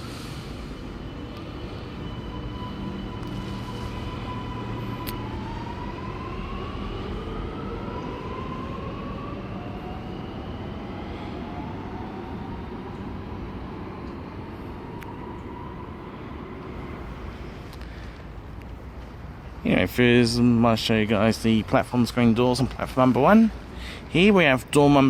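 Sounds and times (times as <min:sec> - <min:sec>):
train traction motors whining: 0:00.0 - 0:18.8.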